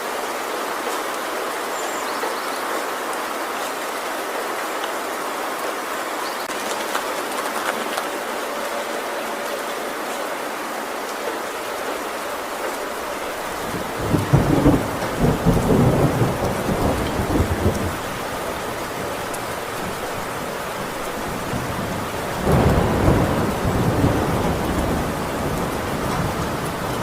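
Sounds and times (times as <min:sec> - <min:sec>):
heavy rain on a tin roof: 0:00.0 - 0:27.0
thunder rumbling: 0:12.4 - 0:27.0.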